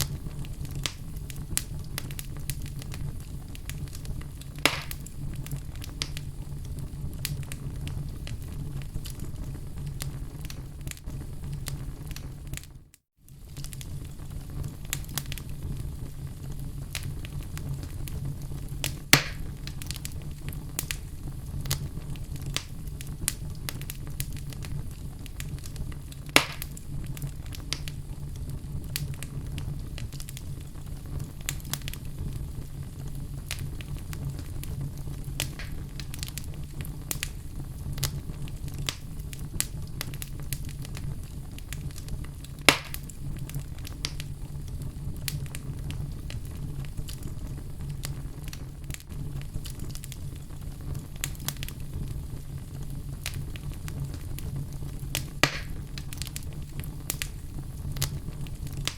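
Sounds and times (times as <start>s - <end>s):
fire flames rumbling: 0.0s - 58.9s
small fire crackles: 0.0s - 58.9s
sharp loud fire pops: 4.6s - 5.1s, 18.9s - 19.5s, 26.3s - 26.8s, 35.4s - 36.1s, 42.6s - 43.1s, 55.4s - 55.8s.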